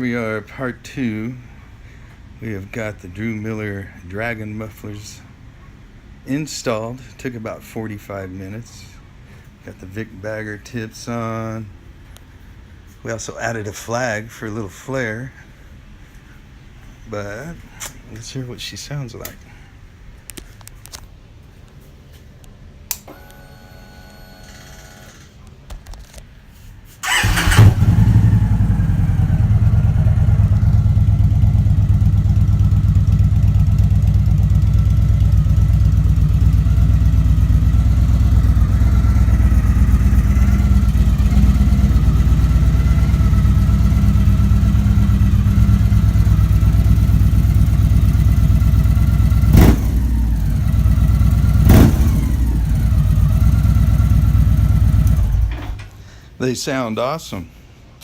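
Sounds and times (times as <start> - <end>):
motorcycle starting up: 27.0 - 55.9
motorcycle engine idling loudly: 27.1 - 55.5.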